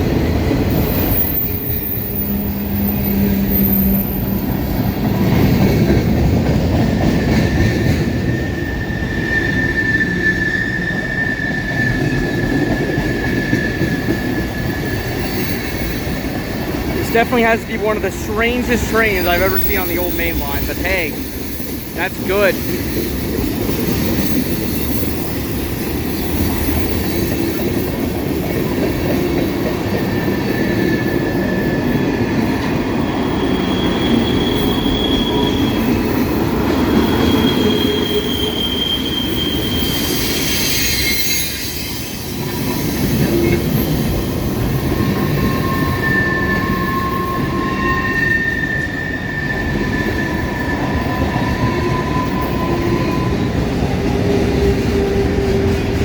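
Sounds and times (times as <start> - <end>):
high wheel squeals: 0.8 - 4.9, 37.0 - 44.1, 44.7 - 53.6
freight cars rolling on rails: 2.9 - 56.0.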